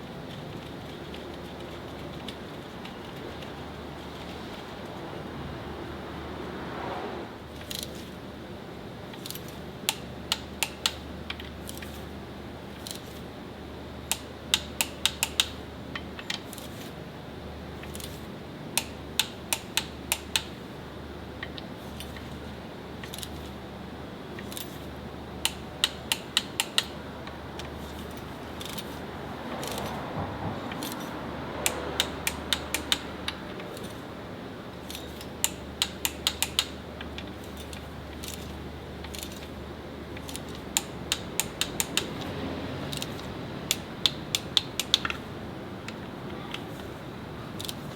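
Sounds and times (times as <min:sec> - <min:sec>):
steady low hum: 0:00.0 - 0:47.9
sharp metallic clicks: 0:09.1 - 0:12.0, 0:14.1 - 0:16.8, 0:17.8 - 0:20.6, 0:25.4 - 0:29.0, 0:30.6 - 0:34.1, 0:34.7 - 0:47.0, 0:47.6 - 0:47.9.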